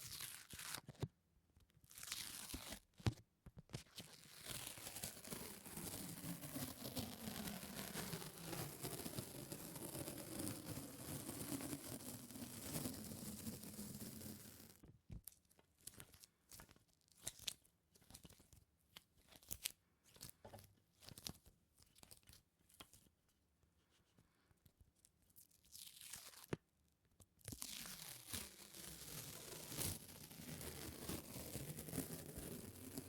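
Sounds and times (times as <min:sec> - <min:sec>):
sticky material peeling apart: 0:27.4 - 0:33.0.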